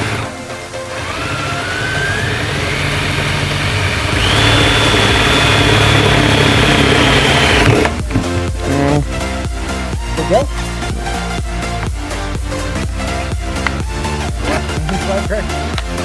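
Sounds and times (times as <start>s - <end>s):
power drill whining through metal: 0.0s - 8.0s.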